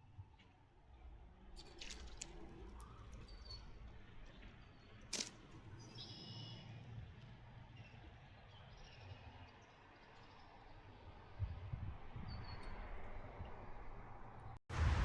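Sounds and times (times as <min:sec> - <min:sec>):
faint bird chirps: 0:05.8 - 0:06.8
steady low rumble: 0:14.7 - 0:15.0.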